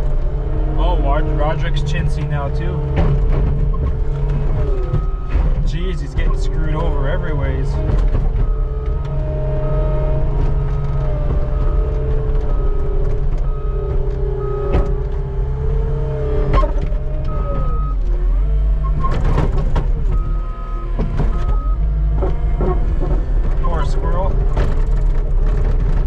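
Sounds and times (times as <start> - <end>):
skid steer engine running: 0.0 - 26.0
machine knocks and clunks: 2.8 - 6.9, 7.7 - 9.2, 10.0 - 15.4, 18.9 - 26.0.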